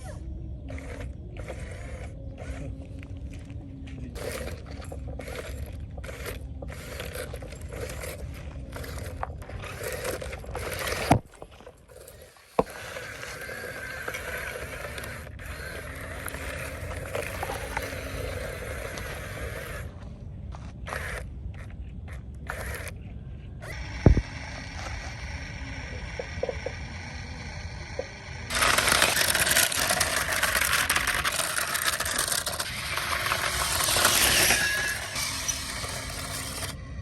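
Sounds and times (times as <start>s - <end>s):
machinery engine rumble: 0.0s - 37.0s
scraping: 28.5s - 36.8s.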